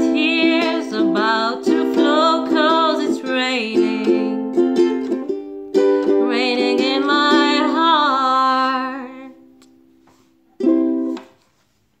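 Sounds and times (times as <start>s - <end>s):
strummed string instrument: 0.0s - 9.4s.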